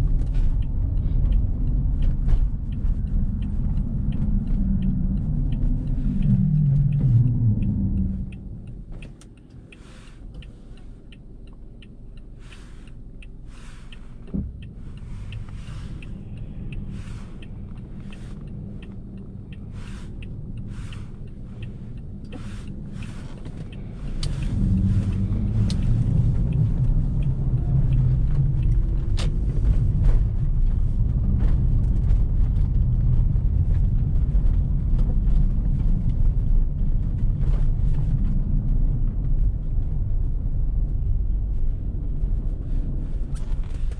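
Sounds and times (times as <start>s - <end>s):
faint ticks: 0.0s - 34.2s
car tyres and engine rumble: 0.0s - 43.9s.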